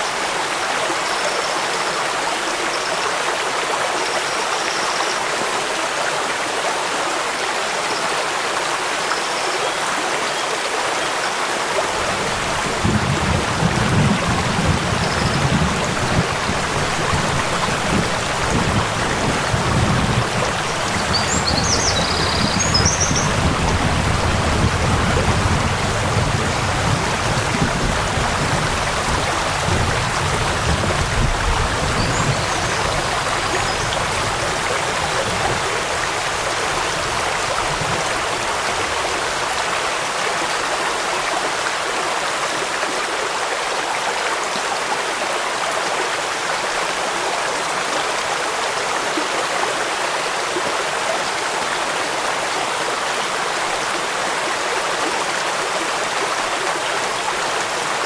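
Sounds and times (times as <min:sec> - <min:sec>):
waterfall and stream rushing: 0:00.0 - 0:58.0
rain falling: 0:10.8 - 0:42.9, 0:44.7 - 0:58.0.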